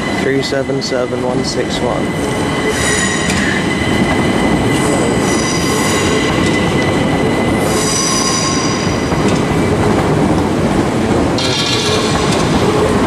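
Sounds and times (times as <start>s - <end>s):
train wheels rumbling on rail: 0.0s - 13.0s
high-pitched wheel squeal: 4.8s - 6.8s, 7.6s - 8.9s.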